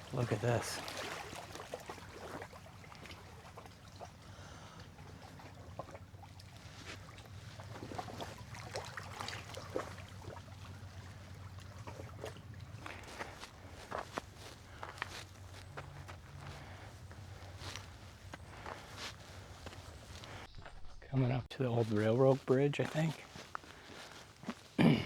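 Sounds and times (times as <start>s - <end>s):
running water trickling: 0.0s - 20.5s, 21.7s - 24.8s
footsteps crunching on trail: 4.4s - 20.9s, 21.6s - 25.0s.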